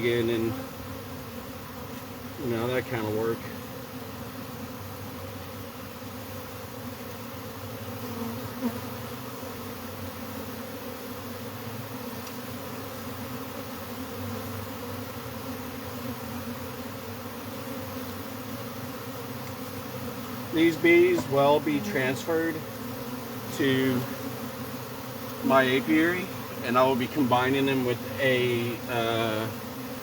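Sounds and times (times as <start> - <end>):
honeybees buzzing: 0.0 - 30.0
faint click: 12.2 - 12.4.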